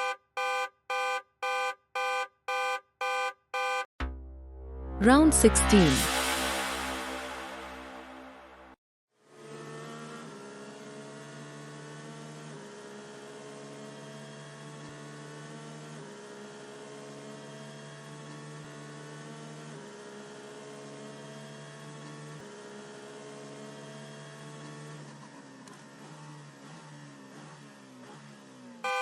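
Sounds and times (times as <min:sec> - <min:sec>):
synthesizer drone music: 0:04.0 - 0:08.8.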